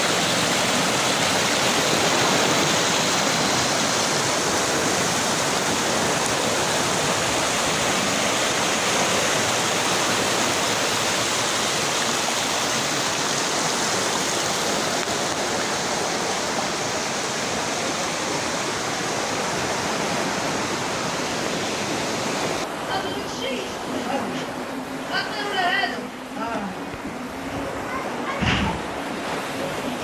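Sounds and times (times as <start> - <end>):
waterfall rushing: 0.0 - 23.4.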